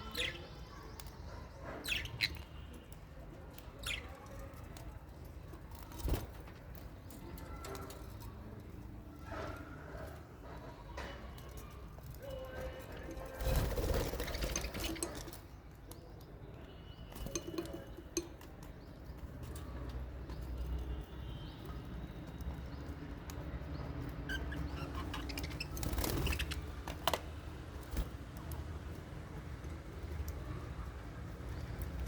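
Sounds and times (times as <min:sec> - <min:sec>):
parrots chirping: 0:01.8 - 0:02.6, 0:24.3 - 0:26.6.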